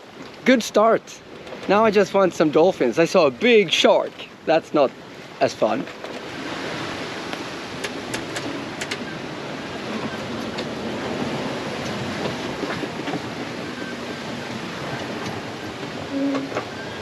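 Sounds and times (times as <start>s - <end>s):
water rushing along hull: 0.0s - 17.0s
sharp clicks or creaks: 7.8s - 9.0s.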